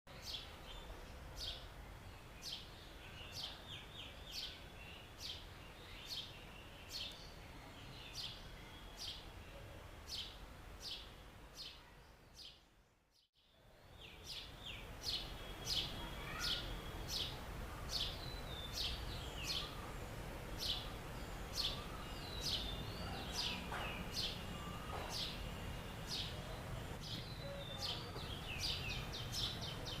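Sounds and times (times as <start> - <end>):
sparrow chirping: 13.9 - 30.0.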